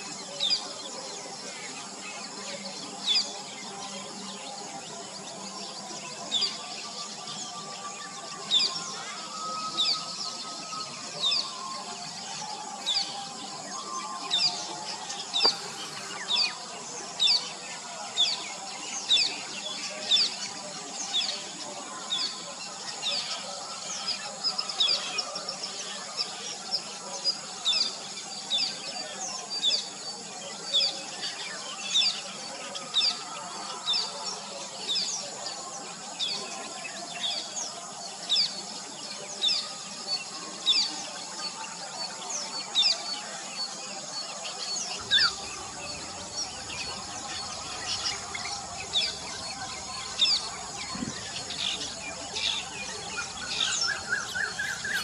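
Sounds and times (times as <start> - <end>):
bird chirping: 44.8 - 55.0.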